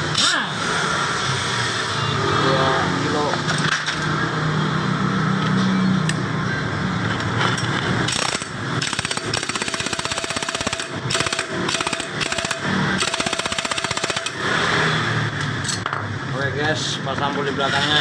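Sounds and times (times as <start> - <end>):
impact wrench hammering: 8.1 - 14.7.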